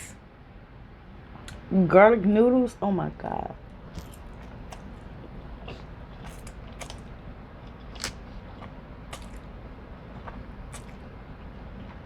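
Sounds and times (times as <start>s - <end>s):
steady low hum: 0.0s - 12.0s
chewing with mouth clicks: 3.7s - 12.0s.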